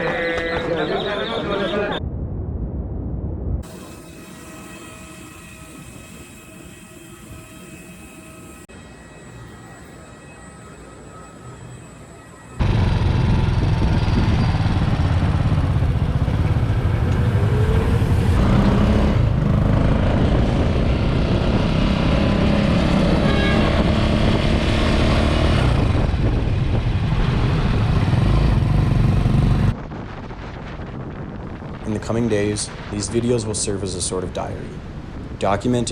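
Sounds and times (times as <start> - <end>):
engine rumbling: 12.6 - 29.8.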